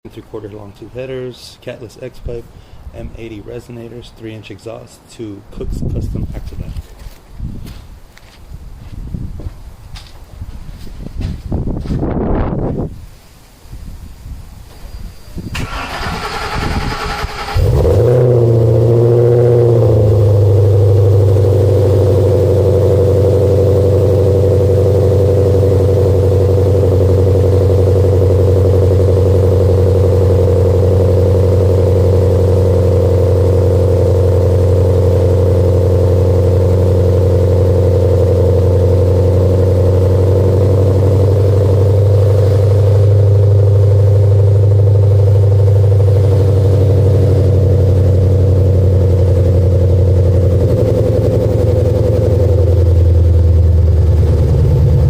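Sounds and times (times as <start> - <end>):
engine idling loudly: 15.6 - 55.0.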